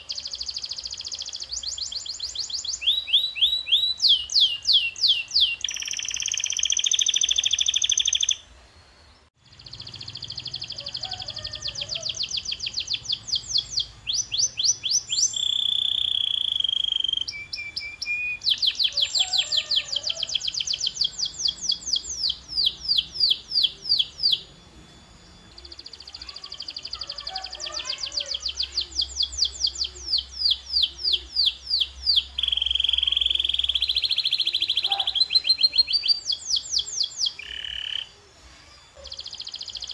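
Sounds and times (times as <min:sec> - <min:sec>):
canary singing: 0:00.0 - 0:08.5, 0:09.4 - 0:39.9.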